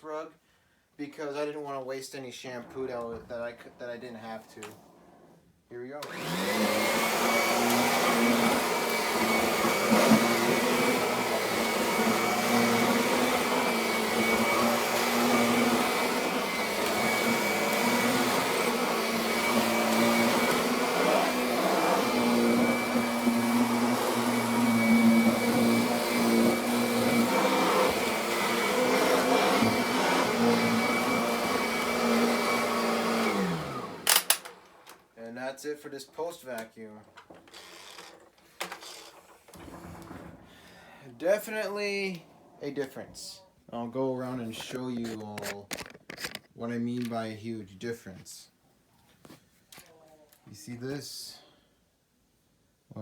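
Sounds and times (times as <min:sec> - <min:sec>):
upright vacuum cleaner running: 0:06.0 - 0:34.9.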